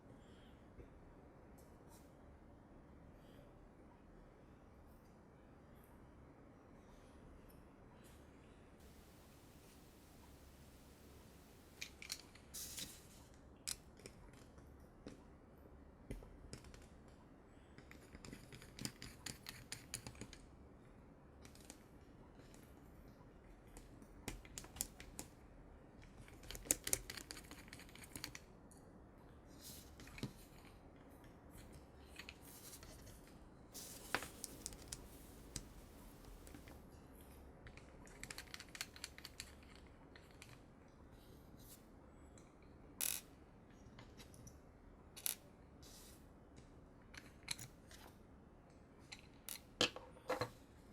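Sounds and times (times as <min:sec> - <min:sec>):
small parts clicking and scraping: 0:11.8 - 0:14.5, 0:33.8 - 0:36.8, 0:37.7 - 0:40.6, 0:43.0 - 0:43.4, 0:45.2 - 0:45.4, 0:49.1 - 0:50.5.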